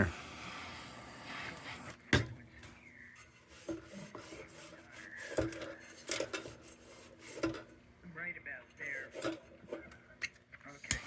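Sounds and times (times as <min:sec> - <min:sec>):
metal scraping on metal: 0:03.1 - 0:07.7.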